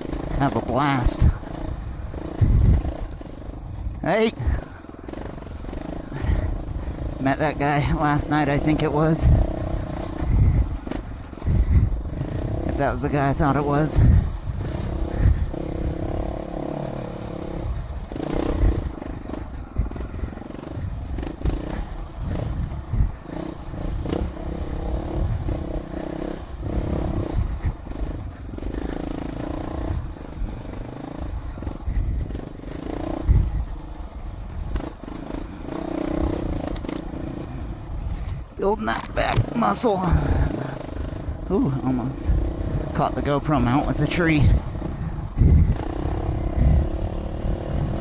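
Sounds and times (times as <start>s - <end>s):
motorcycle engine revving: 0.0s - 48.0s
motorcycle thumping on bumpy ground: 17.6s - 25.7s, 34.5s - 37.6s, 38.2s - 39.6s.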